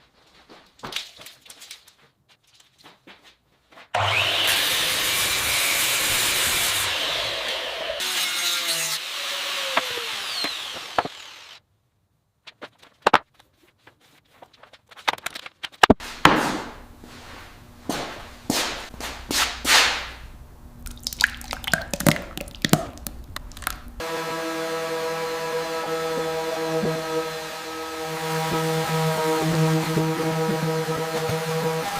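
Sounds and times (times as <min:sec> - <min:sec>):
power tool running: 0:04.0 - 0:11.6, 0:24.0 - 0:31.9.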